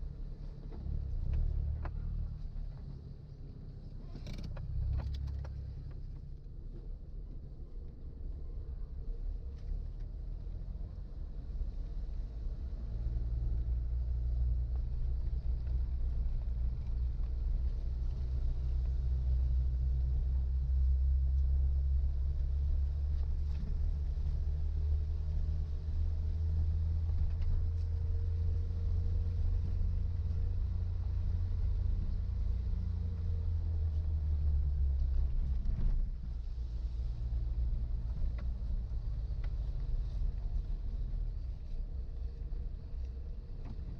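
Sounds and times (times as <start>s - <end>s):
car engine and road rumble: 0.0s - 43.9s.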